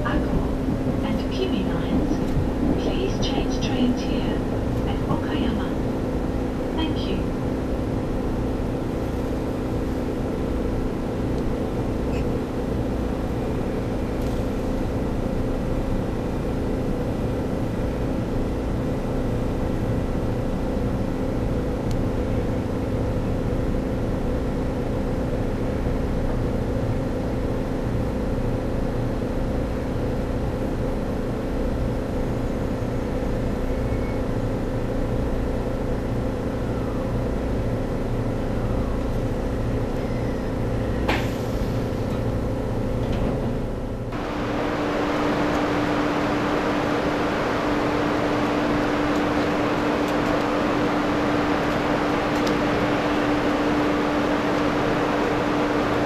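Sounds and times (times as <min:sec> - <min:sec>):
train rumble inside carriage: 0:00.0 - 0:56.0
hiss with steady hum: 0:43.8 - 0:56.0.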